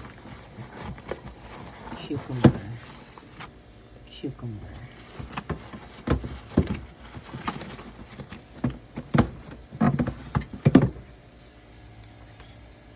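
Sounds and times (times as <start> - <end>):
knocks and clunks in a refrigerator: 0.0 - 3.0, 4.7 - 11.2.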